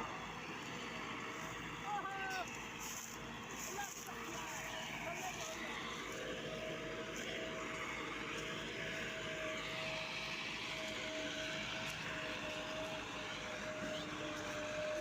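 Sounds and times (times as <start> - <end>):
constant engine whine: 0.0 - 15.0
tractor engines droning under load: 0.0 - 15.0.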